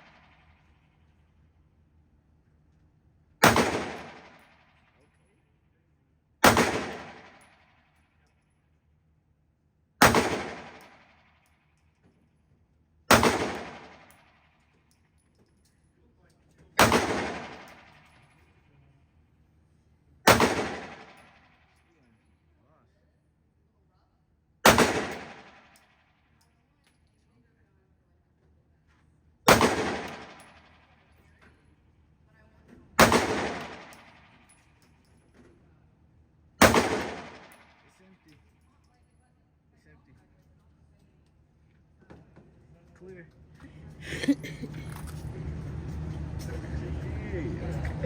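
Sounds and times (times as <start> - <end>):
pistol shots with echo: 3.4 - 4.9, 6.4 - 8.0, 10.0 - 11.3, 13.1 - 14.6, 16.8 - 18.2, 20.2 - 21.7, 24.6 - 26.0, 29.5 - 31.1, 33.0 - 34.8, 36.6 - 37.9.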